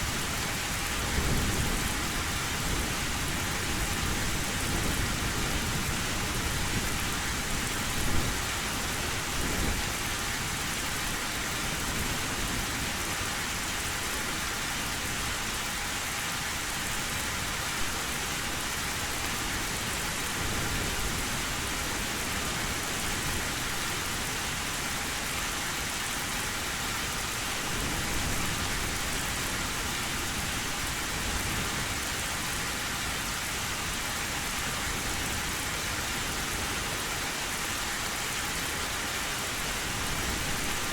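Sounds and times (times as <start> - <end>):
heavy rain on metal roof: 0.0 - 40.9.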